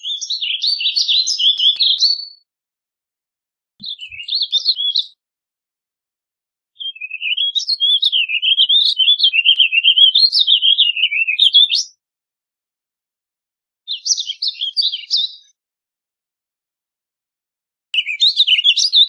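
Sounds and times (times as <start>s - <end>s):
bird singing rambling warble: 6.8s - 11.8s, 18.0s - 19.0s.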